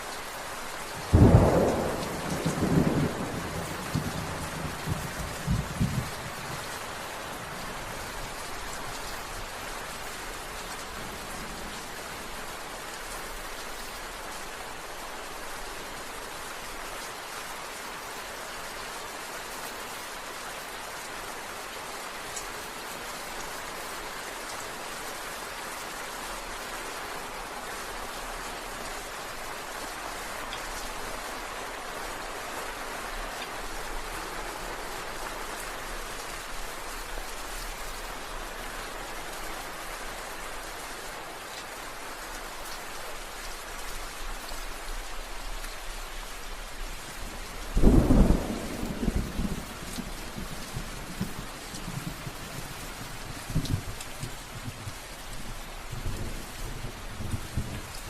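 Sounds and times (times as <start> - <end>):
rain pattering on surfaces: 0.0 - 58.0
low thunder thuds: 47.8 - 49.6.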